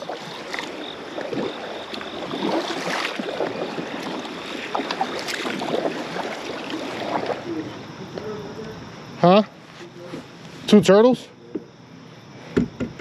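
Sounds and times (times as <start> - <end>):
water lapping against boat hull: 0.0 - 10.5
small knocks: 12.5 - 13.0.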